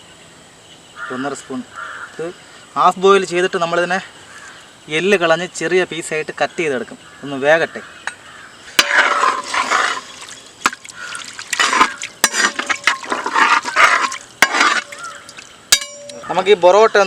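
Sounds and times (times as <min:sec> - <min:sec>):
spoon stirring in a pot: 0:08.8 - 0:16.3
metal clinks against pot: 0:15.7 - 0:16.3.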